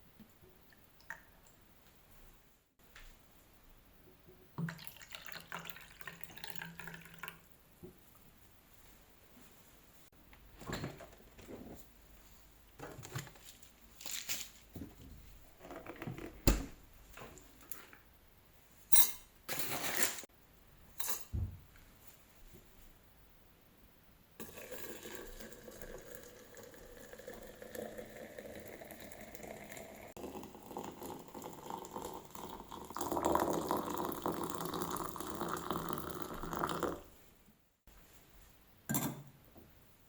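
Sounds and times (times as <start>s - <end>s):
liquid pouring into a vessel: 4.6s - 7.5s, 24.4s - 37.0s.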